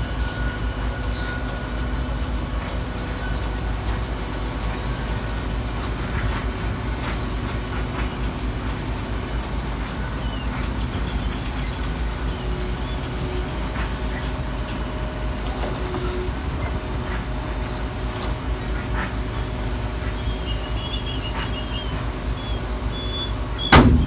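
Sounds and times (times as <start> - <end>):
garbage truck rumbling: 0.0 - 24.0
faint high squeaks: 9.1 - 14.4, 15.6 - 24.0.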